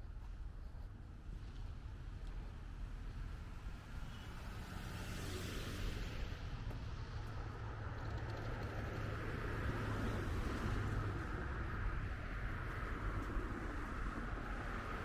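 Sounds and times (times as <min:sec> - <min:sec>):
car passing by: 0:04.2 - 0:06.6.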